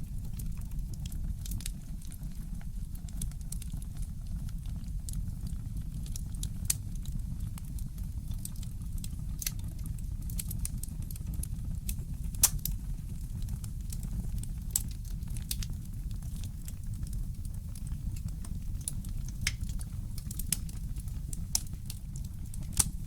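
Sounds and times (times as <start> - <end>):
wood fire crackling: 0.0 - 23.0
low steady rumble: 7.2 - 23.0.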